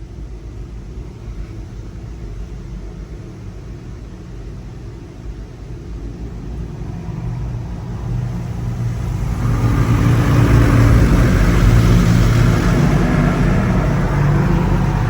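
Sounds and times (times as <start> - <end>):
car wash machine hum: 4.8 - 15.0
rushing water spray: 7.1 - 15.0.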